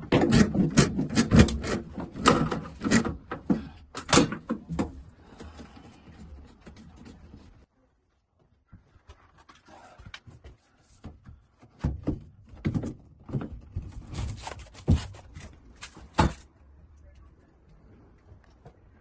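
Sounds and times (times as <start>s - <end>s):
knocks clunks and thuds: 0.0s - 7.5s, 11.0s - 16.5s.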